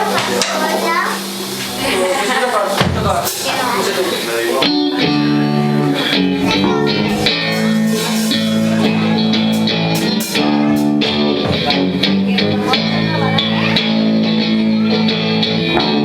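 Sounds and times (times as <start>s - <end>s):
drum and cymbal hits: 2.8s - 5.1s, 6.0s - 12.3s
electric guitar chords: 3.3s - 16.0s
bass guitar: 4.6s - 16.0s.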